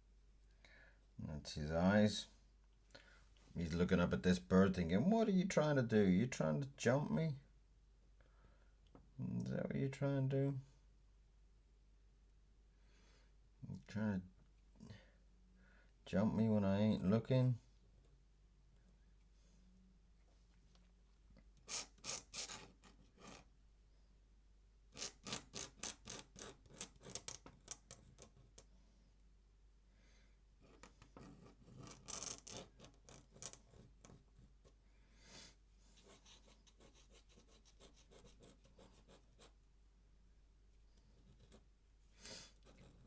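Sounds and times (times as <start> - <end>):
pen nib scratching on paper: 21.7 - 23.5, 25.0 - 28.6, 30.6 - 34.8, 36.0 - 39.6, 41.0 - 41.7, 42.5 - 43.0.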